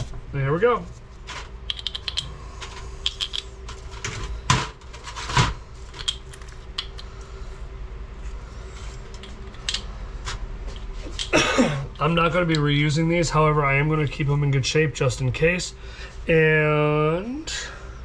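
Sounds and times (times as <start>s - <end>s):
metallic clicks of tools handled: 1.7s - 2.3s, 3.0s - 3.4s, 9.2s - 9.8s.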